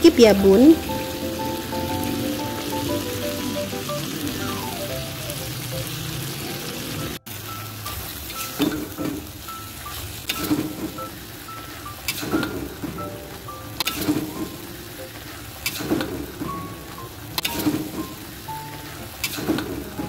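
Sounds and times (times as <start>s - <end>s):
food sizzling in a wok: 0.0s - 12.8s, 17.0s - 20.0s.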